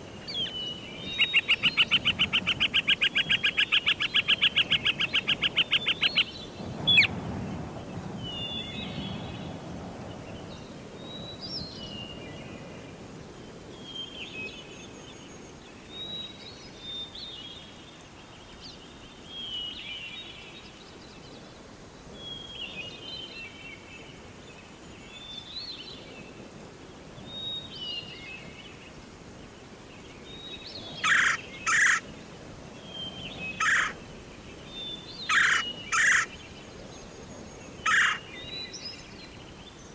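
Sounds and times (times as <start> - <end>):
songbird warbling: 0.2 - 7.1, 30.9 - 32.0, 32.9 - 34.0, 34.7 - 36.5, 37.8 - 39.2
bird harsh calls: 31.0 - 32.0, 33.4 - 34.0, 35.2 - 36.4, 37.8 - 38.3.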